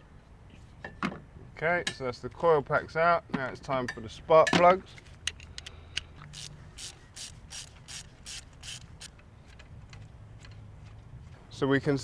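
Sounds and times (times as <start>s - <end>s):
ratchet wrench clicking: 5.3s - 9.2s.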